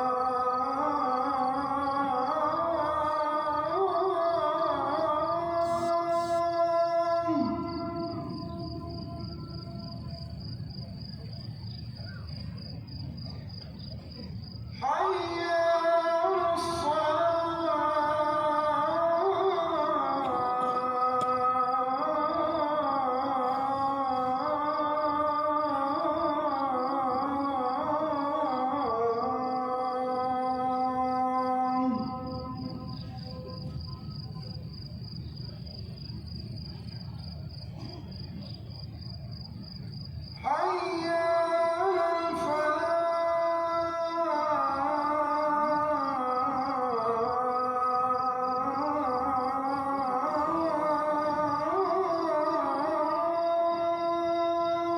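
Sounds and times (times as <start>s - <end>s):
man chanting over loudspeakers: 0.0s - 37.7s, 38.4s - 54.9s
low ambient murmur: 0.0s - 54.9s
faint steady high tone: 31.0s - 39.3s.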